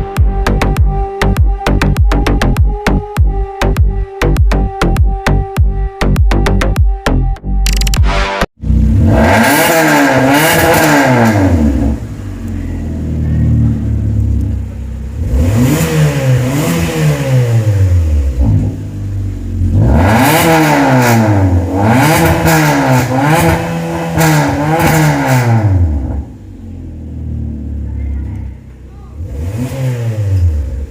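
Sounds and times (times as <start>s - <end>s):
car engine revving: 8.0s - 30.9s.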